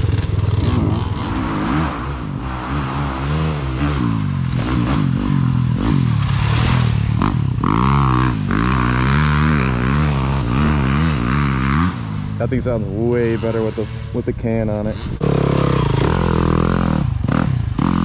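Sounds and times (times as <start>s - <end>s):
small motorbike engine revving: 15.0s - 18.0s.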